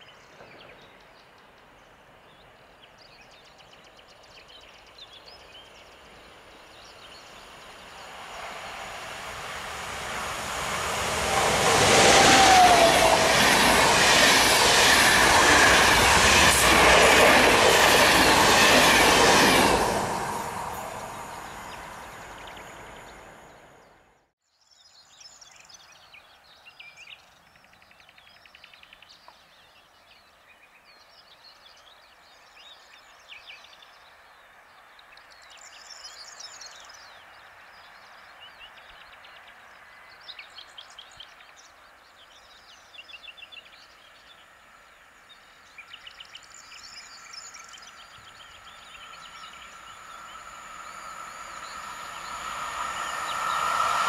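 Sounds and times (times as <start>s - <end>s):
songbirds chirping: 0.0s - 12.2s, 13.3s - 54.0s
approaching train: 5.4s - 24.2s, 35.6s - 54.0s
humming rails: 8.0s - 23.8s, 48.2s - 54.0s.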